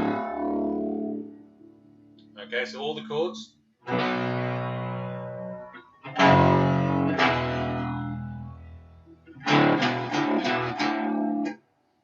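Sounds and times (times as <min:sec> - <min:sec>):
electric guitar power chords ringing: 0:00.0 - 0:01.9, 0:03.9 - 0:11.5.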